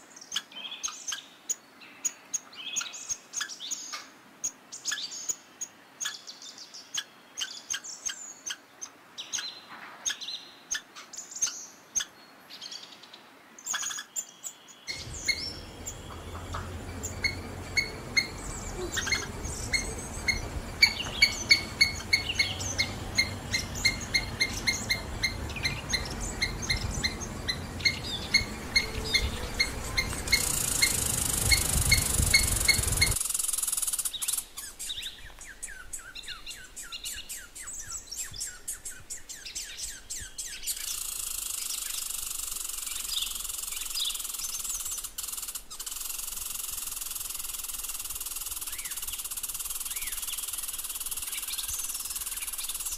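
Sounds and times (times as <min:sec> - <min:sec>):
small birds chirping: 0:00.1 - 0:52.9
steady hiss: 0:14.9 - 0:35.0.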